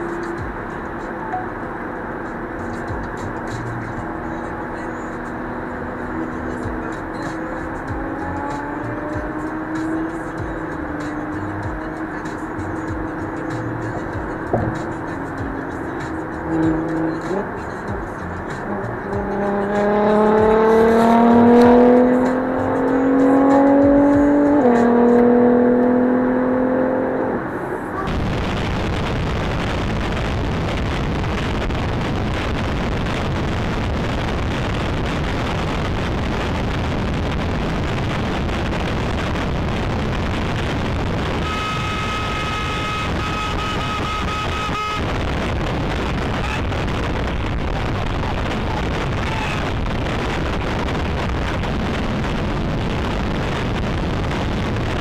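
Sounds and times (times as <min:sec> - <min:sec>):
motorcycle engine accelerating: 0:00.0 - 0:55.0
wind noise on microphone: 0:28.1 - 0:55.0.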